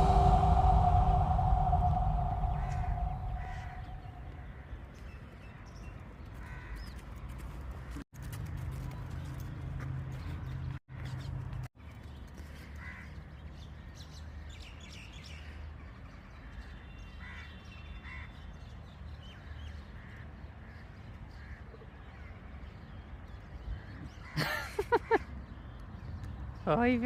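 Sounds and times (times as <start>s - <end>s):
low steady rumble: 0.0s - 4.5s.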